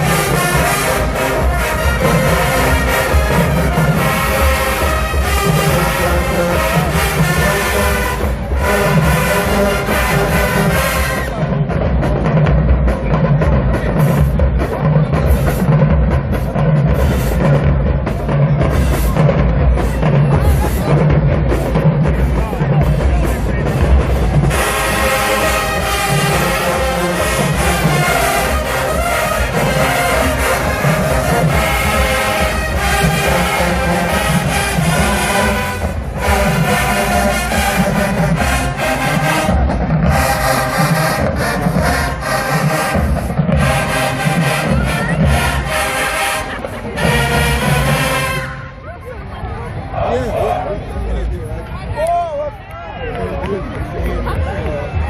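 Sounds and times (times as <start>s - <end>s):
brass holding chords: 0.0s - 11.5s, 24.4s - 48.8s
steady drum beat: 0.0s - 48.6s
marching band playing: 0.0s - 52.0s.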